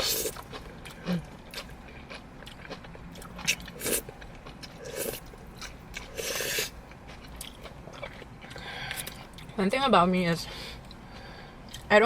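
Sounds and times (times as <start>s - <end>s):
biting and chewing: 0.0s - 9.6s.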